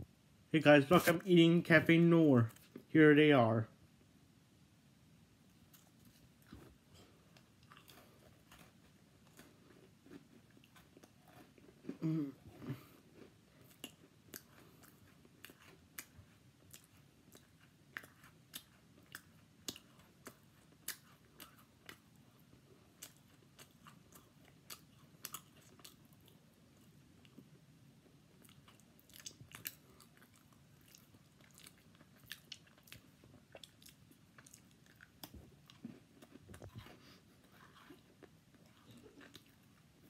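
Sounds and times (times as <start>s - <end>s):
biscuit crunching: 5.7s - 26.4s.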